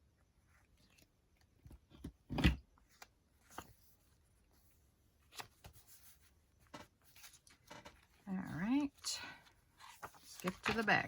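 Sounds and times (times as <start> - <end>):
paper pages rustling and tapping: 5.2 - 8.9, 9.7 - 11.0.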